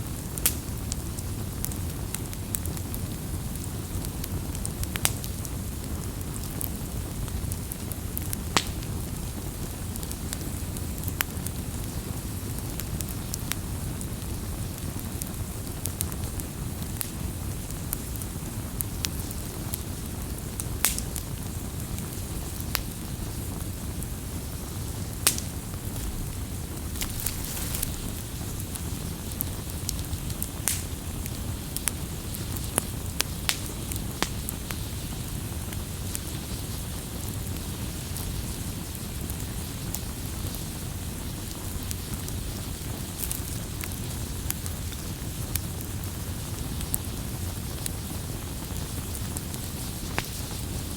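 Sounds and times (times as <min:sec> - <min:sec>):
campfire crackling: 0:00.0 - 0:50.9
fire low rumble: 0:00.0 - 0:50.9
fire pops and snaps: 0:00.2 - 0:09.0, 0:15.0 - 0:40.7, 0:41.4 - 0:50.9
sharp pops and snaps: 0:25.2 - 0:34.8.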